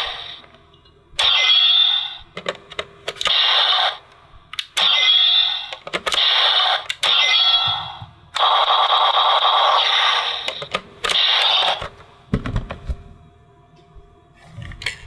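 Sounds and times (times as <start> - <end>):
toy electronic sound effects: 1.2 - 2.2, 4.8 - 11.9.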